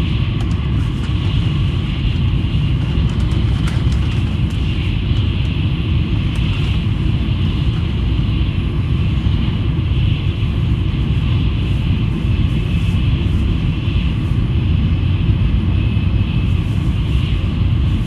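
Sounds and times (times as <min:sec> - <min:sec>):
high-speed train rumbling: 0:00.0 - 0:18.0.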